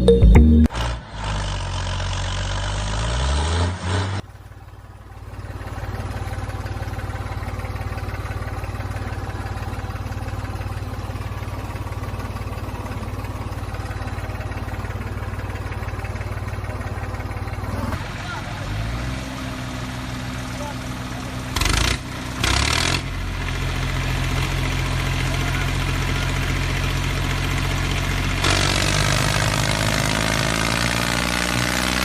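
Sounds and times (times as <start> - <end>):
motor speeding up and idling: 27.4 - 32.0.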